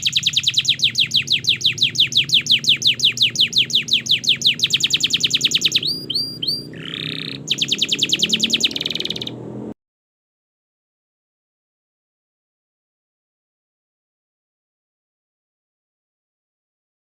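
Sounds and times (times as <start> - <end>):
canary singing: 0.0 - 9.5.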